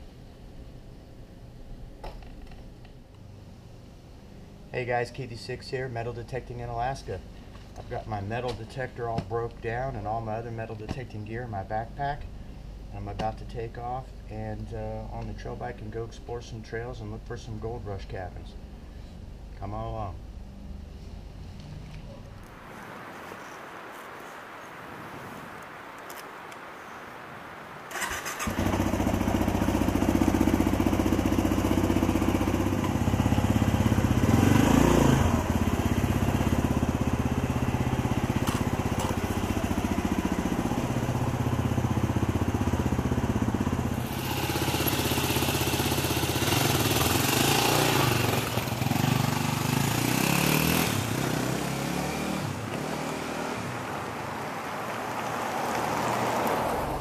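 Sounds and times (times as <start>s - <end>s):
dirt bike engine running: 28.4s - 52.1s.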